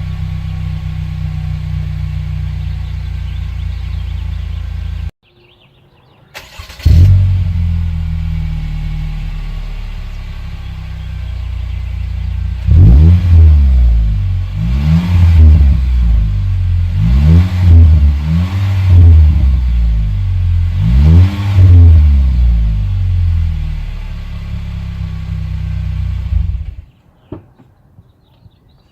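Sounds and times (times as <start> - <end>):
car engine idling and revving: 0.0 - 5.1, 6.4 - 26.9.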